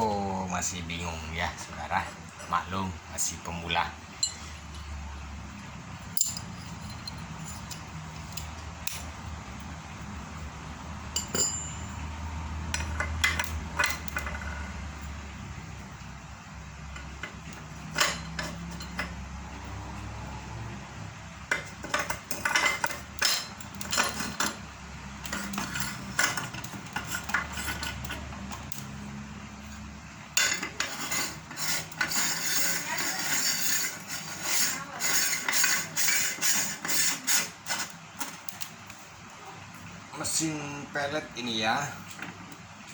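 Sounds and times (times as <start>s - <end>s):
metal parts clinking: 6.0s - 9.1s, 21.6s - 24.6s.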